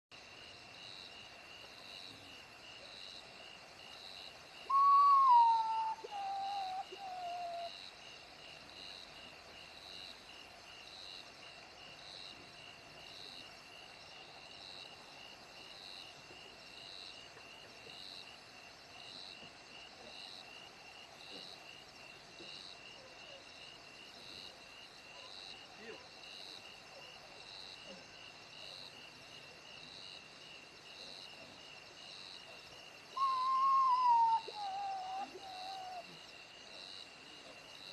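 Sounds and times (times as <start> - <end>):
bird whistled call: 4.7 - 7.7, 33.2 - 36.0.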